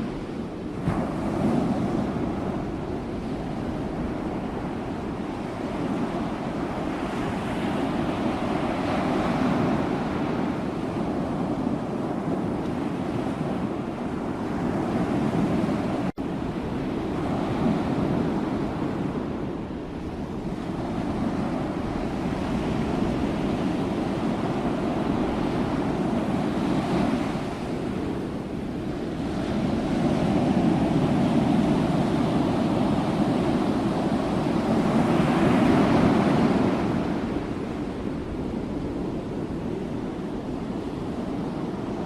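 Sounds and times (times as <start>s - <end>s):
ocean waves breaking on shore: 0.0s - 42.0s.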